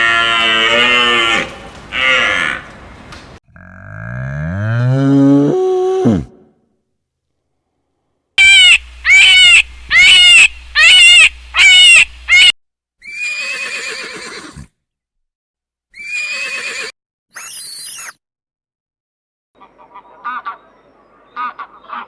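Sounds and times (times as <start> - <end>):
farm animal calling: 0.0 - 3.4.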